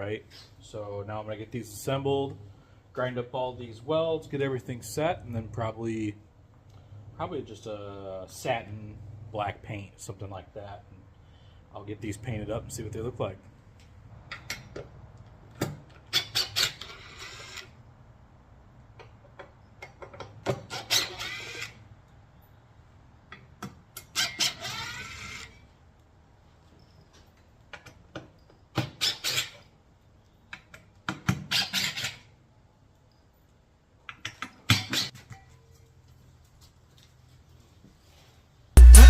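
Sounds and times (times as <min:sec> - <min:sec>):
metal-on-metal scraping: 0:16.1 - 0:17.8.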